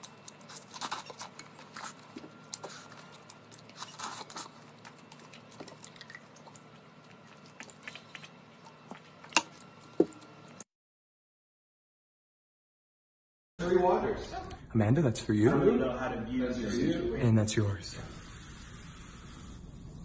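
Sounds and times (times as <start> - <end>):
quiet chewing and biting: 0.0 - 10.6.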